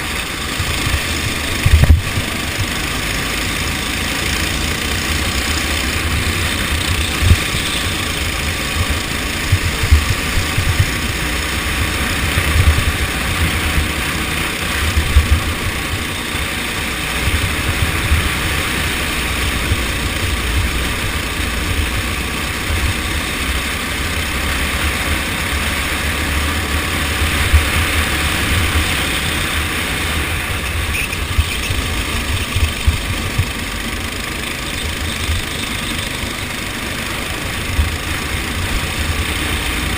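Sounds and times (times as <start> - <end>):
go-kart engine running: 0.0 - 39.9
wind buffeting on microphone: 0.6 - 2.3, 8.8 - 14.0.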